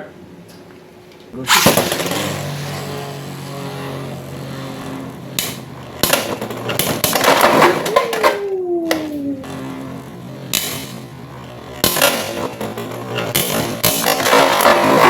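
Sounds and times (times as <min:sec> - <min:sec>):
spinning tops whirring: 0:01.4 - 0:15.0
whine falling in pitch: 0:07.6 - 0:10.3.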